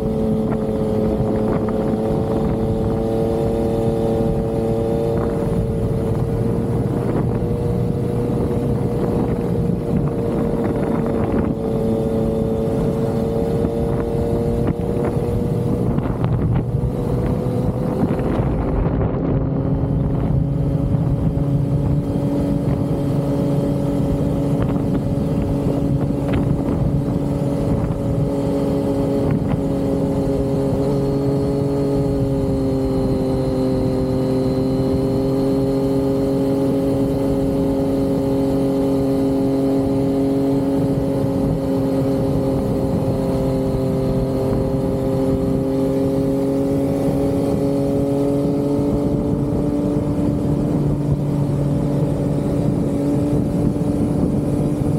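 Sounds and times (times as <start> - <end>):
motorcycle engine cruising: 0.0 - 54.9.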